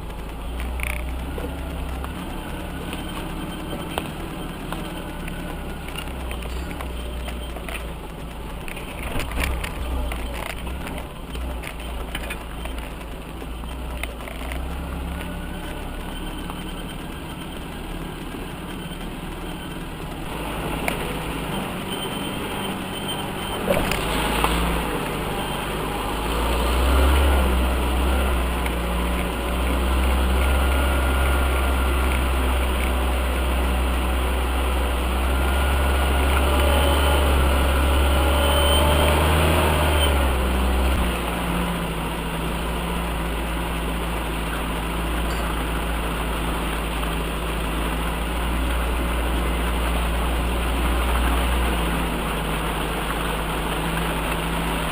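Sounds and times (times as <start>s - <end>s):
off-road vehicle engine running: 0.0s - 54.9s.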